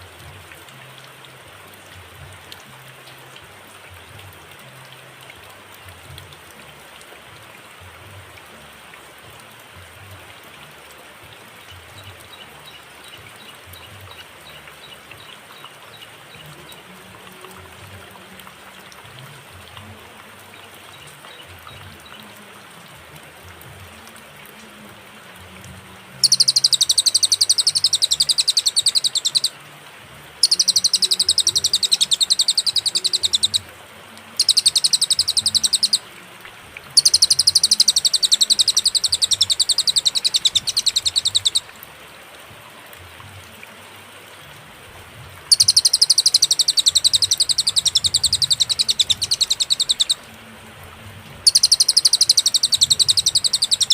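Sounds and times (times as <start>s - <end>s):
low background hiss: 0.0s - 53.9s
bird rapid high trill: 26.2s - 29.5s, 30.4s - 33.6s, 34.4s - 36.0s, 37.0s - 41.7s, 45.5s - 50.2s, 51.5s - 53.9s.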